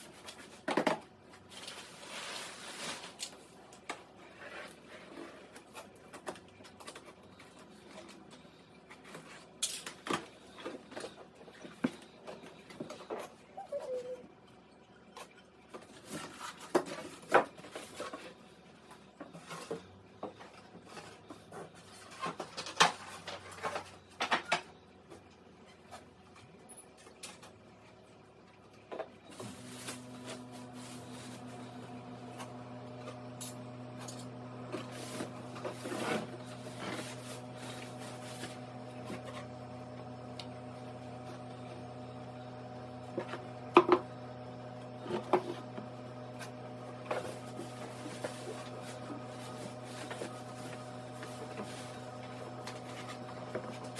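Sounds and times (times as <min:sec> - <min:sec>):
microwave oven humming: 0:18.0 - 0:53.9.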